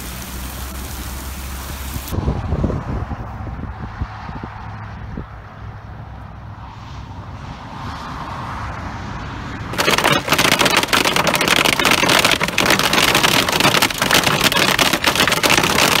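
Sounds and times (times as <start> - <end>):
wind rumble on microphone: 2.0 - 9.7
hail clattering on vehicle roof: 9.7 - 16.0.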